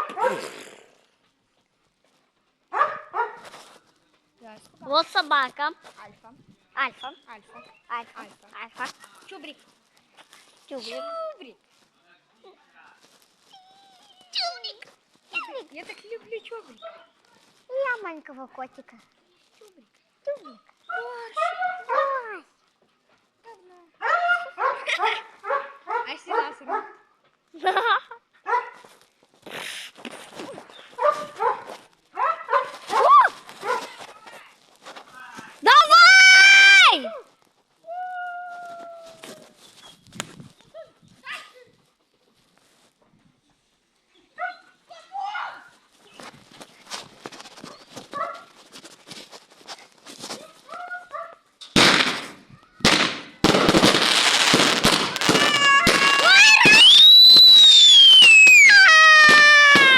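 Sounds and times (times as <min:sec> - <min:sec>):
firework crackling: 0:00.0 - 0:01.1, 0:51.7 - 0:59.9
brief hiss: 0:29.5 - 0:30.1
firework bangs: 0:51.8 - 0:59.9
whistling firework: 0:51.8 - 0:59.9.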